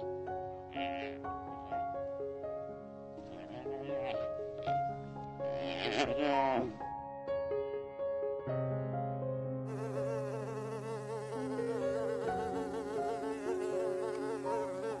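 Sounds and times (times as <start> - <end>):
bee buzzing: 9.7 - 15.0.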